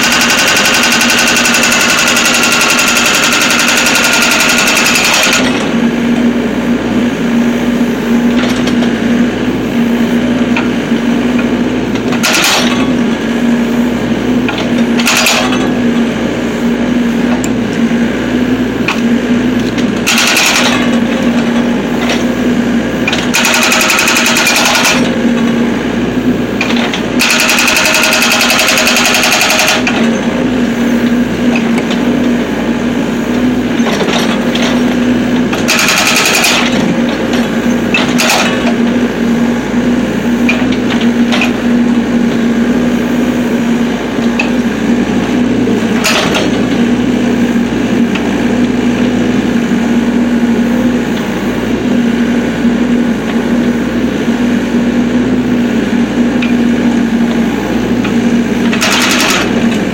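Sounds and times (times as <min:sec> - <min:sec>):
hydraulic breaker hammering: 0:00.0 - 0:06.3, 0:10.4 - 0:13.3, 0:14.0 - 0:16.2, 0:17.2 - 0:42.8, 0:43.6 - 0:49.5, 0:56.0 - 0:59.9
excavator engine running: 0:00.0 - 0:59.9.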